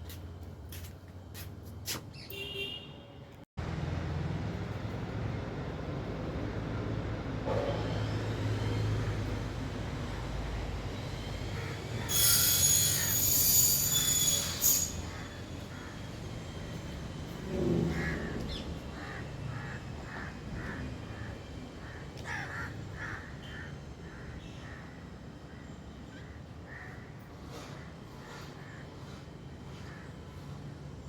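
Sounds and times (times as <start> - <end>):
low traffic rumble: 0.0 - 12.1, 15.0 - 31.0
loud high-pitched screech: 11.4 - 16.3.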